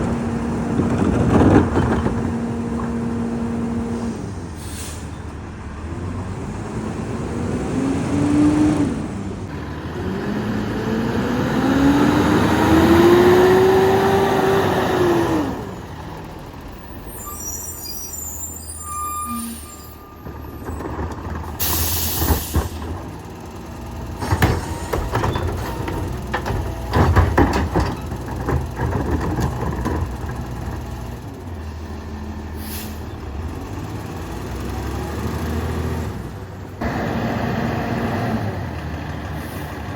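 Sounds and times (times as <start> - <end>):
air brake hissing: 4.6 - 5.2, 32.6 - 33.1
garbage truck engine revving: 5.4 - 16.7, 19.3 - 39.9.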